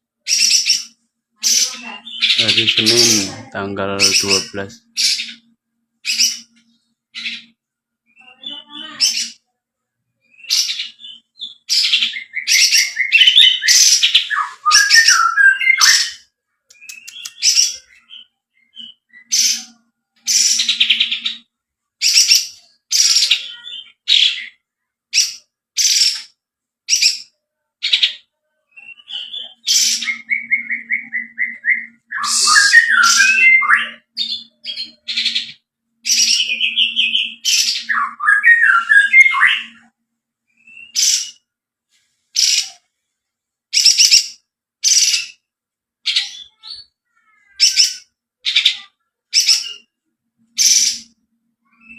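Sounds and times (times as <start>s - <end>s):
songbird singing high calls: 10.3s - 26.3s, 28.8s - 39.9s.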